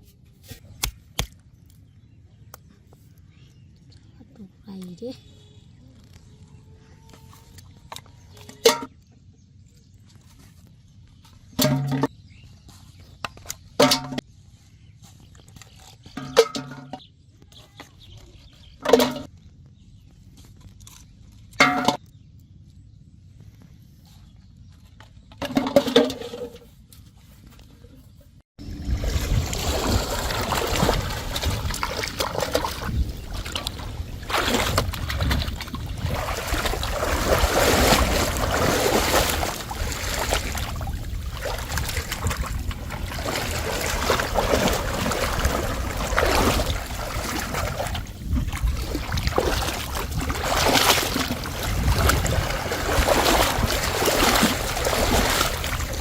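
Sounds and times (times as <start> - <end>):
water splashing and sloshing: 11.4 - 12.1, 12.7 - 14.2, 15.3 - 17.0, 17.8 - 19.3, 20.6 - 22.0, 25.1 - 27.7, 28.6 - 56.0.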